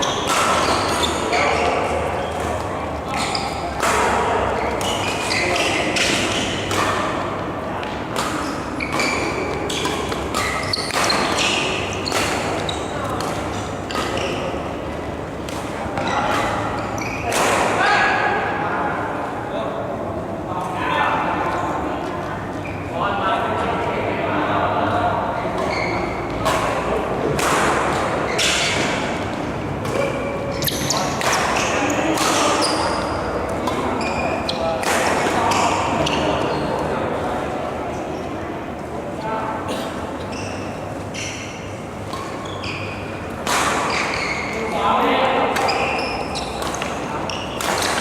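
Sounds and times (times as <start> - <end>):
shoes squeaking on court floor: 0.0 - 17.4, 22.4 - 22.9, 25.5 - 26.8, 28.1 - 37.0, 39.8 - 48.0
rackets hitting shuttlecock: 0.0 - 17.8, 25.5 - 36.4, 41.4 - 48.0.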